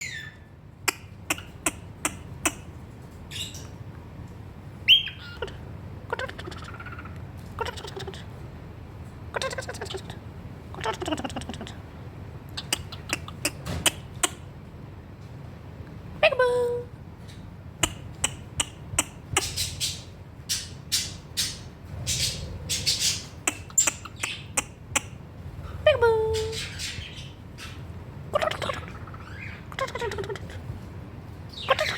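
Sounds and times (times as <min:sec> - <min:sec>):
cockatiel clicking and chattering: 0:00.8 - 0:03.2, 0:06.2 - 0:08.2, 0:12.5 - 0:14.4, 0:17.3 - 0:25.2
cockatiel clicks and chirps: 0:17.8 - 0:19.7, 0:23.4 - 0:25.1.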